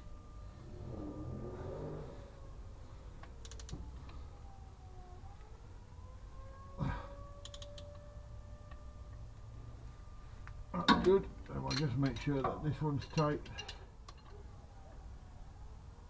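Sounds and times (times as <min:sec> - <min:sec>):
ratchet spanner clicking: 0:03.4 - 0:03.7, 0:07.4 - 0:07.8.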